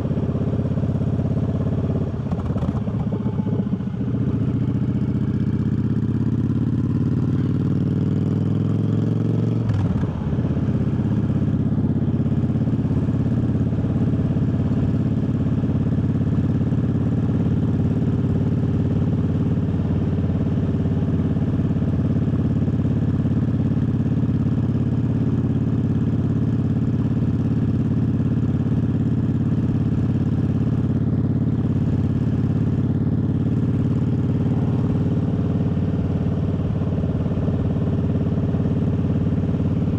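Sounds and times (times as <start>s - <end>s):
motorcycle engine revving: 25.4s - 39.9s.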